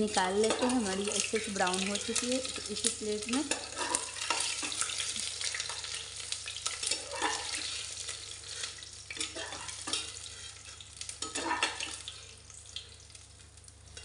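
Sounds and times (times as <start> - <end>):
eggs sizzling in oil: 0.0 - 14.0
spatula scraping a pot: 3.5 - 5.3, 6.6 - 12.0.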